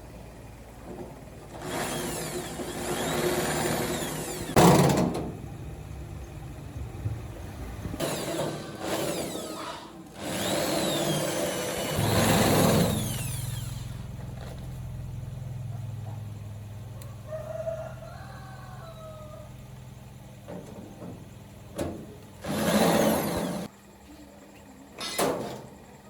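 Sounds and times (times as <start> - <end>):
low machine hum: 0.0 - 25.0
power tool squealing: 1.6 - 4.6, 8.0 - 14.1, 22.4 - 23.7
loud burst: 10.4 - 13.7
rooster crowing: 16.9 - 19.7.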